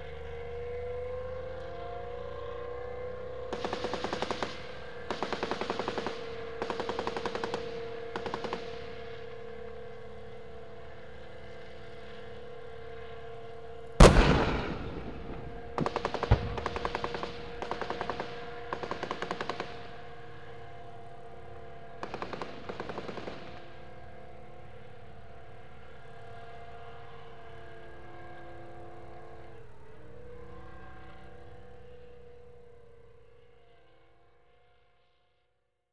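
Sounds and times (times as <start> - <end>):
tank engine drone: 0.0 - 35.1
loud cannon blast: 14.0 - 18.0
machine-gun bursts: 14.0 - 19.7.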